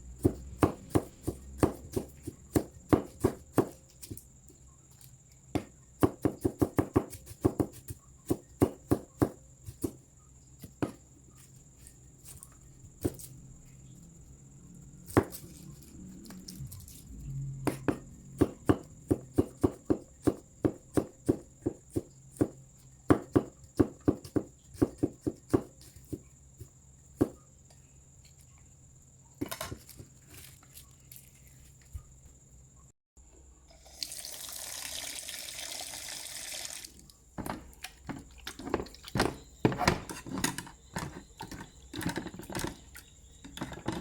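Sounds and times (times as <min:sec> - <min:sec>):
cleaver chopping on cutting board: 0:00.2 - 0:04.2, 0:05.6 - 0:10.0, 0:17.7 - 0:25.7.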